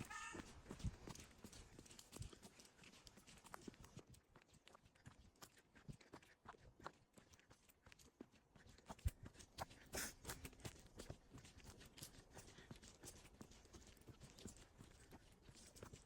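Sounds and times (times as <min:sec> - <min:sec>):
footsteps crunching on a path: 0:00.0 - 0:05.6.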